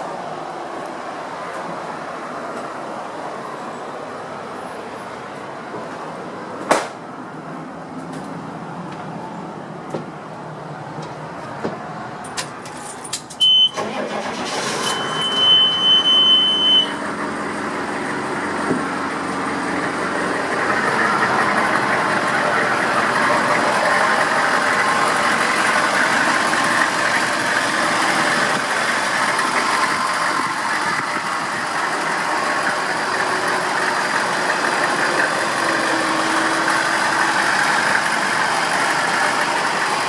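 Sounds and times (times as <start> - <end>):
diesel engine cranking and running: 12.1 - 40.0
high warning chime: 14.6 - 17.0.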